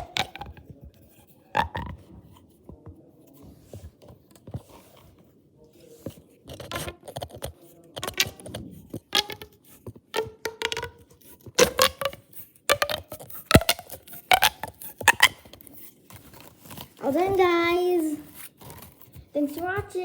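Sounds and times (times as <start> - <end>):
plastic pop tubes popping: 0.0 - 2.1, 6.5 - 20.0.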